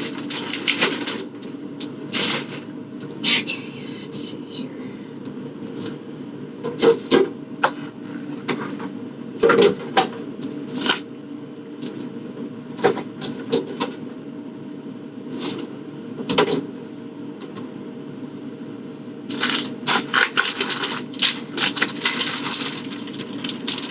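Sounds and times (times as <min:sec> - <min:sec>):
low background hum: 0:00.0 - 0:23.9.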